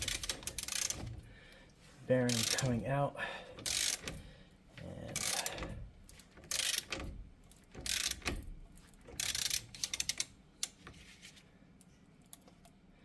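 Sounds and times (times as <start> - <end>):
ratchet wrench clicking: 0.0 - 1.1, 2.3 - 2.7, 3.6 - 4.2, 5.2 - 5.7, 6.4 - 8.5, 9.1 - 10.8.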